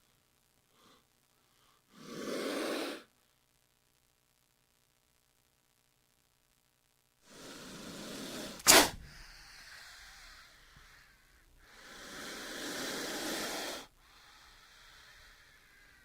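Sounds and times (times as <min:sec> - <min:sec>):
snake hissing: 0:01.9 - 0:03.1, 0:07.2 - 0:16.0.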